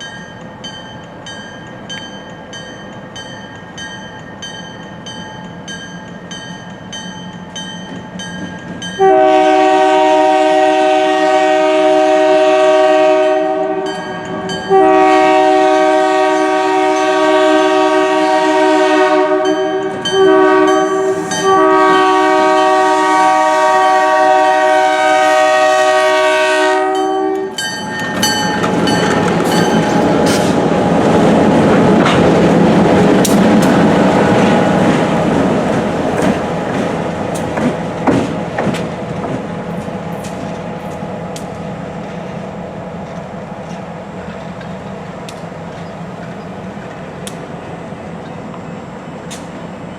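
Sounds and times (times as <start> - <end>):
locomotive horn: 9.0 - 27.6
ringing bell: 27.0 - 30.4
train wheel clatter: 27.4 - 48.6.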